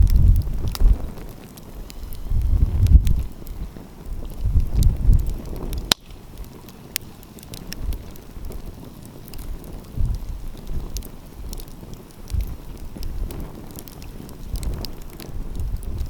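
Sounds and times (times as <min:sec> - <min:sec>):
wind rumbling on microphone: 0:00.0 - 0:16.0
wood fire crackling and popping: 0:00.0 - 0:16.0.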